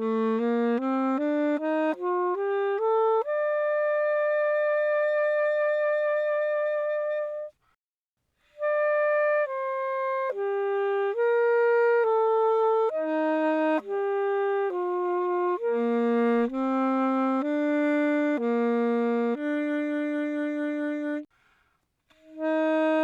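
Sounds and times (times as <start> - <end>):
alto saxophone melody: 0.0 - 7.6, 8.4 - 21.3, 22.1 - 23.0
breath: 7.6 - 8.6, 21.3 - 22.3.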